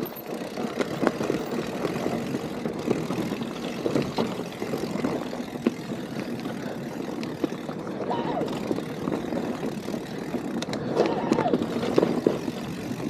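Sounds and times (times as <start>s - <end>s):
bike knocking and rattling: 0.0s - 13.0s
bike tyres rushing on dirt trail: 0.0s - 13.0s.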